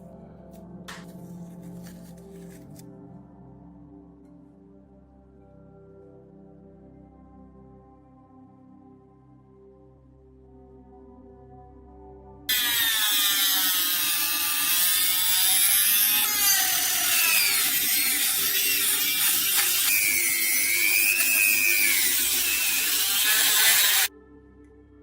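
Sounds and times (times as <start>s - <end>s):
power tool grinding metal: 12.5s - 24.1s.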